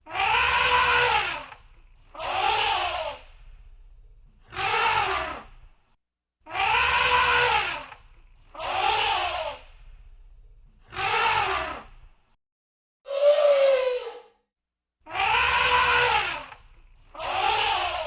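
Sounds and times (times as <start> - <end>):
elephant trumpeting: 0.1 - 1.5, 6.5 - 7.8, 15.2 - 16.5.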